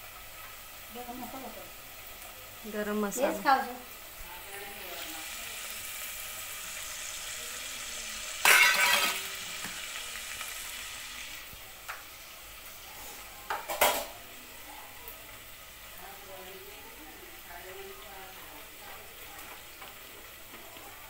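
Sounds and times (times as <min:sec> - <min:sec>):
curry sizzling in pot: 0:00.0 - 0:21.0.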